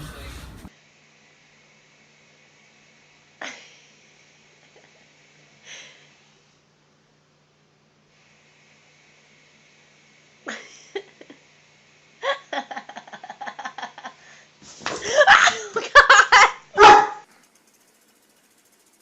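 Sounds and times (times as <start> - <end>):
dog barking and yelping: 16.3 - 17.2.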